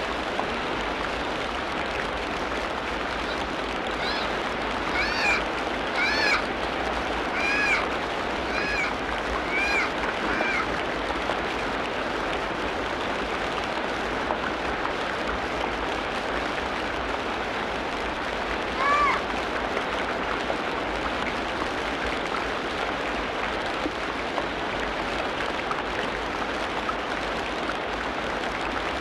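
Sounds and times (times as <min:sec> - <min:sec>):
arched animal call: 0:04.0 - 0:05.4, 0:06.0 - 0:06.4, 0:07.3 - 0:07.8, 0:08.5 - 0:10.7.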